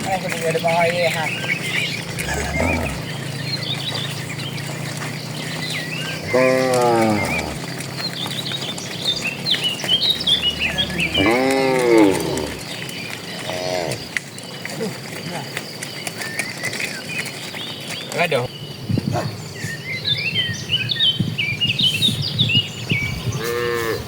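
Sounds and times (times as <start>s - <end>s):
birds chirping: 0.0s - 24.0s
cattle mooing: 1.7s - 14.2s, 23.4s - 24.0s.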